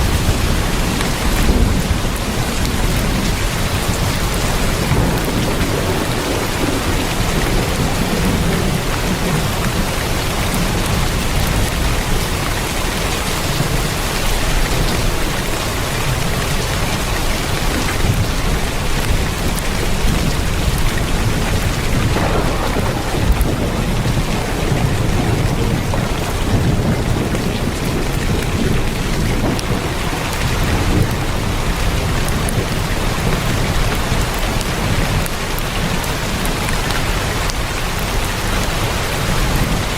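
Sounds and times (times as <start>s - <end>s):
heavy rain on a tin roof: 0.0s - 39.9s
low rumble: 19.8s - 30.0s.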